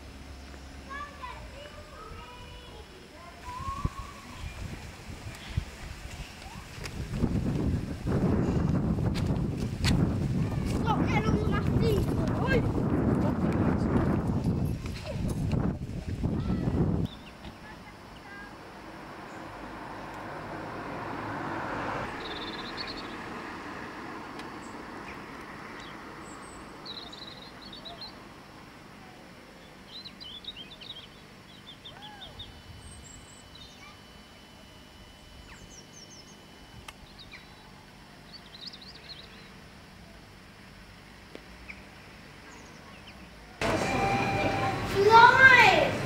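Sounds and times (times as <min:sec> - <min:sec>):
small birds chirping: 0:16.4 - 0:18.5, 0:22.1 - 0:23.3, 0:24.4 - 0:43.6.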